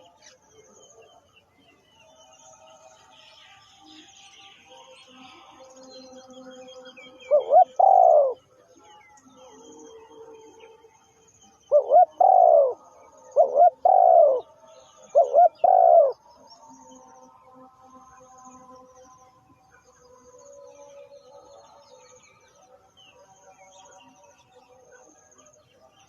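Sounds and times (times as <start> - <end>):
dove cooing: 7.2 - 8.5, 11.7 - 16.2.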